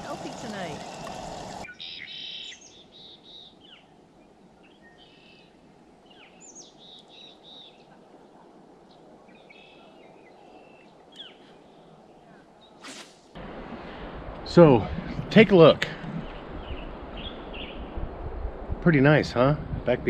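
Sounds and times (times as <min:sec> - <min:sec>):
soft outdoor hiss: 0:00.0 - 0:20.0
songbirds chirping: 0:00.2 - 0:13.4, 0:15.4 - 0:18.2.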